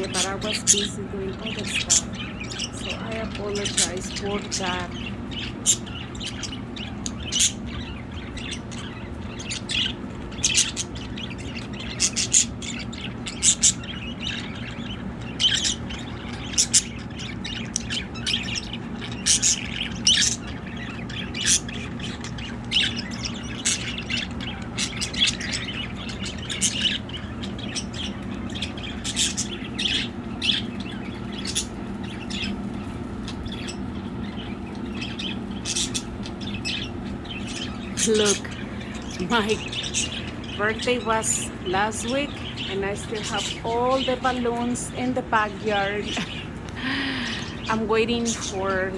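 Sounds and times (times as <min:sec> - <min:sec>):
budgerigars chirping and squawking: 0:00.0 - 0:48.9
steady low hum: 0:00.0 - 0:48.9.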